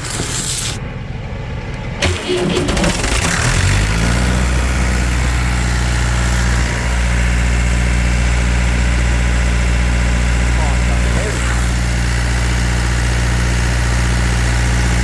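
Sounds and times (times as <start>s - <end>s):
truck engine starting and idling: 0.0s - 15.0s.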